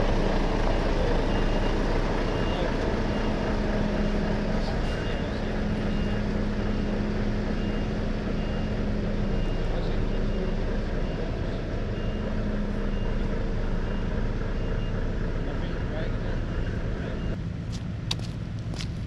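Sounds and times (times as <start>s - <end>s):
diesel engine running: 0.0s - 19.0s
reversing alarm beeps: 0.5s - 3.4s, 4.0s - 7.0s, 7.6s - 15.6s.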